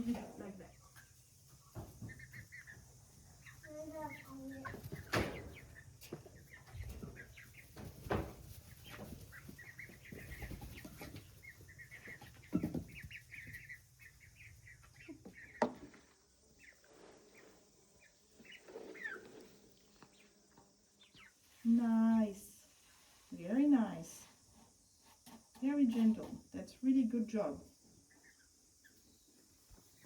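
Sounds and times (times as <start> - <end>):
baby chicks cheeping: 0.0 - 16.8, 17.4 - 19.5, 20.1 - 21.5, 27.7 - 30.0
soft rustling: 3.7 - 15.1.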